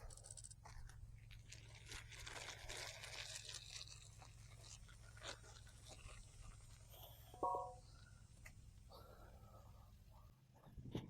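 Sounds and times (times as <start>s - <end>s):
faint crunching and scraping: 0.0s - 8.0s.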